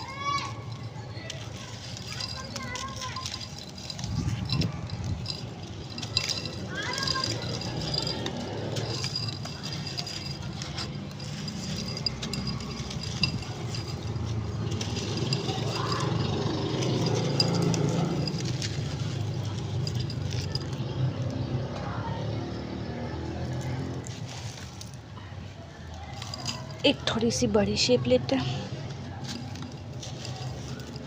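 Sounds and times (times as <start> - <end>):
sand and chalk crumbling by hand: 0.0 - 20.9, 23.4 - 25.2, 28.9 - 31.0
faint voices: 0.0 - 31.0.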